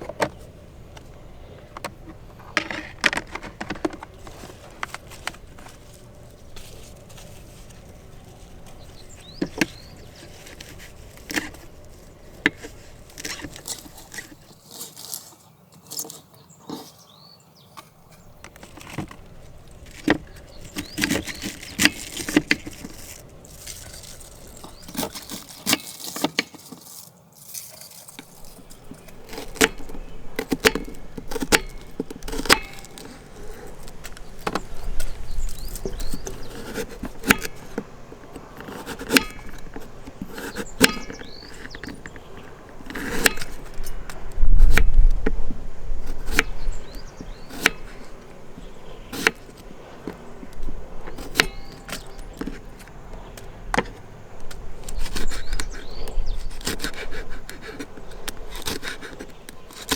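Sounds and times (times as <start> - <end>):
small objects clinking: 19.6 - 37.7.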